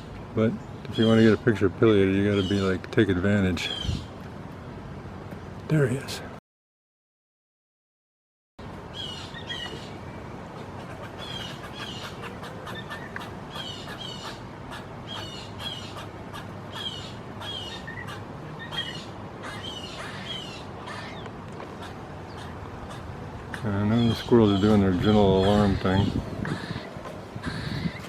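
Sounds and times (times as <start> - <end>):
squirrels barking alarm calls: 0.7 - 2.8, 3.5 - 4.2, 8.9 - 28.0.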